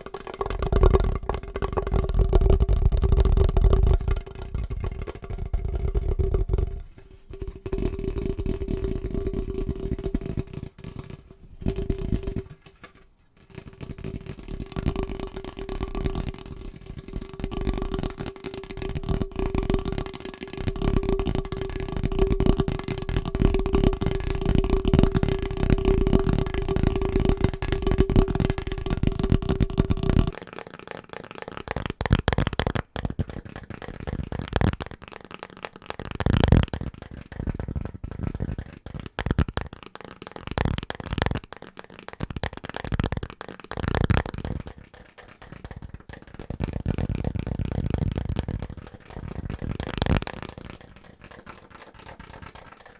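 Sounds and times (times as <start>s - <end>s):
fingernail tapping on objects: 0.0s - 30.4s.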